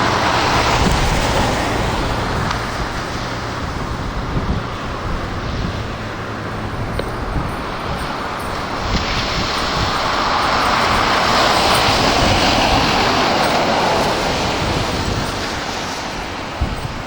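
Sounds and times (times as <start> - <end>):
vehicle driving past: 0.0 - 17.0.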